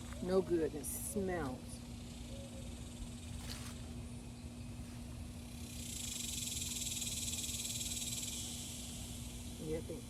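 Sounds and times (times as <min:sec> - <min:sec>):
low hum and rumble: 0:00.0 - 0:10.0
insects chirring: 0:05.3 - 0:10.0.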